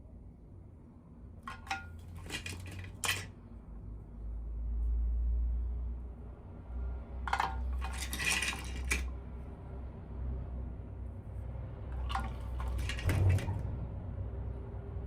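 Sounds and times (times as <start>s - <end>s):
plastic pieces clinking and rattling: 1.5s - 3.3s, 7.3s - 9.1s.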